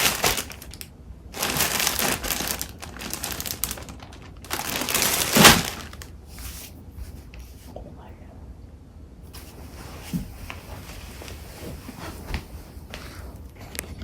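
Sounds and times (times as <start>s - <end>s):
paper crinkling and rustling: 0.0s - 7.3s.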